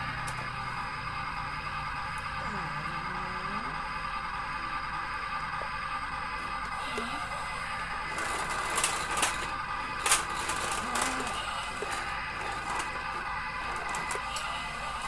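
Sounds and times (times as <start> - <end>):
toy electric motors whirring: 6.4 - 15.0.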